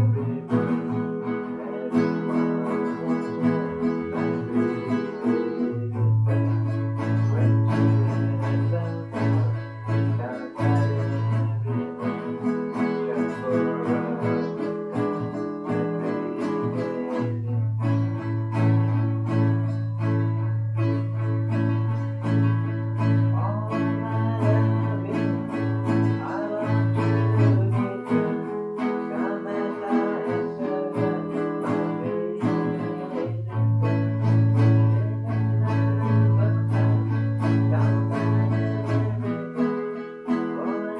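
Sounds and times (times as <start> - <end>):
guitar picked notes: 0.0 - 40.9.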